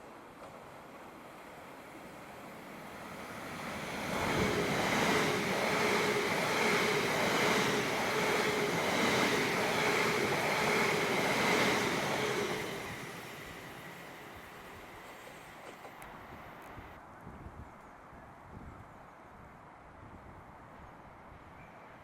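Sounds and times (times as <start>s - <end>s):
train passing rumble: 0.1s - 17.0s.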